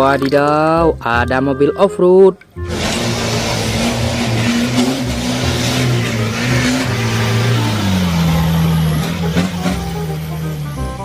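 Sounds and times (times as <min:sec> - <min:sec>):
motor running with hiss: 0:02.7 - 0:09.2.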